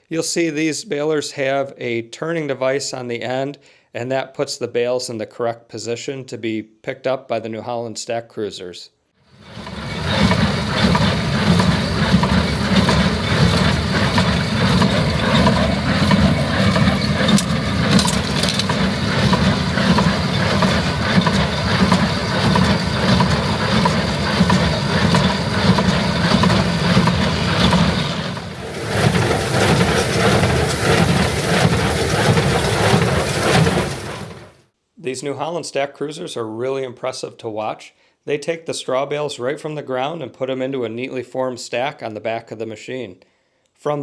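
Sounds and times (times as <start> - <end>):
thin hissy machine noise: 9.4 - 34.4
diesel engine running under load: 9.4 - 34.6.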